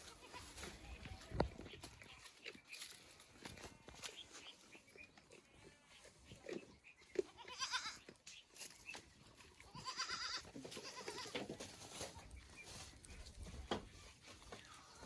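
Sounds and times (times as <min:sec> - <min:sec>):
goats bleating: 0:07.3 - 0:08.1, 0:09.7 - 0:11.4.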